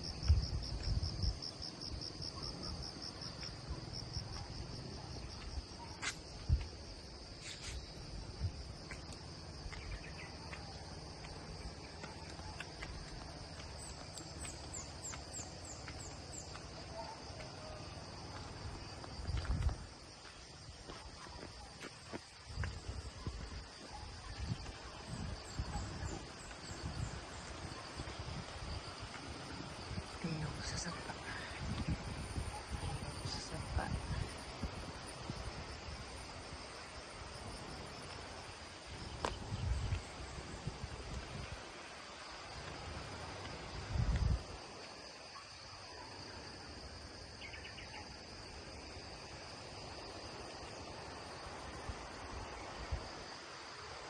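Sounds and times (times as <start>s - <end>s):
wind gusts on microphone: 0.0s - 8.9s, 18.5s - 21.2s, 22.4s - 45.0s
insects droning: 0.0s - 54.0s.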